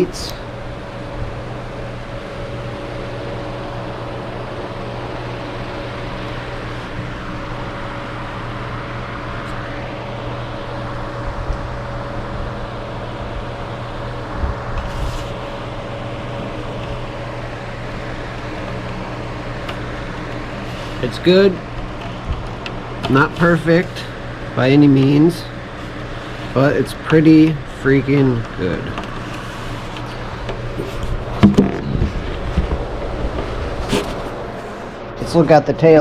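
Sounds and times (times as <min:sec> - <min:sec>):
machine hum: 0:00.0 - 0:36.0.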